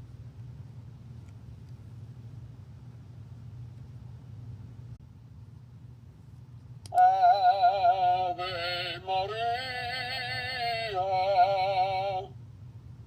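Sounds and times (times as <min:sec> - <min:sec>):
toy singing operatic voice: 0:06.9 - 0:12.3.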